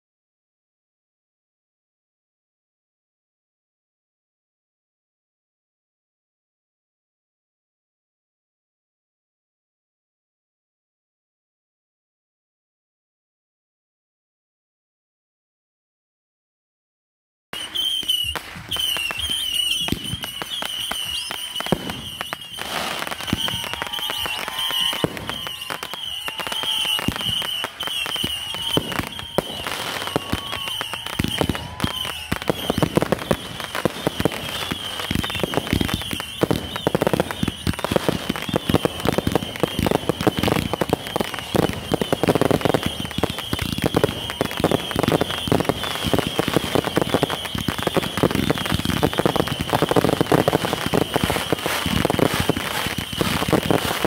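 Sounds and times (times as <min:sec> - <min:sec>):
fireworks bangs and crackling: 0:17.6 - 0:54.0.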